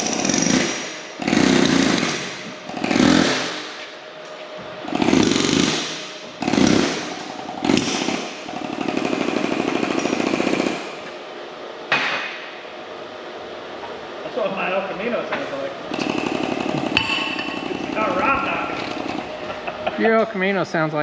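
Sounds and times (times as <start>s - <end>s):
loud rattling tool on steel: 0.0s - 3.7s, 4.9s - 11.0s, 15.9s - 18.2s.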